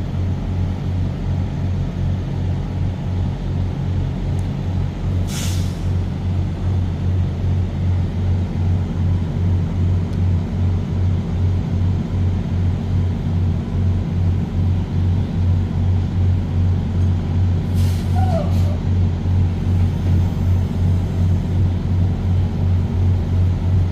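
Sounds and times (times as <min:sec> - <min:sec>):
truck engine droning: 0:00.0 - 0:23.9
short hiss: 0:05.3 - 0:05.9.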